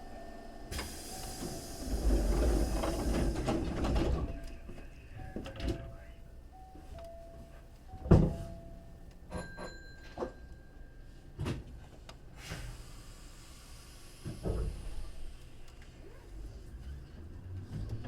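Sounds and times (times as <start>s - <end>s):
hiss: 0.7s - 3.7s, 12.4s - 15.7s
train wheels thudding over joints: 0.7s - 4.5s.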